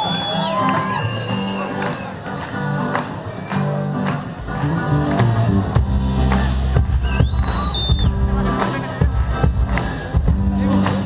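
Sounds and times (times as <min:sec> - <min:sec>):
live band playing: 0:00.0 - 0:11.0
high whistling tone: 0:07.0 - 0:08.2.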